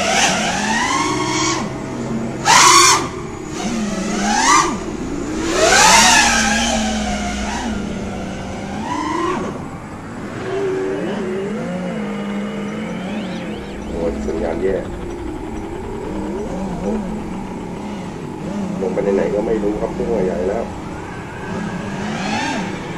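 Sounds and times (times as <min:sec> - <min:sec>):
drone motors whining: 0:00.0 - 0:22.9.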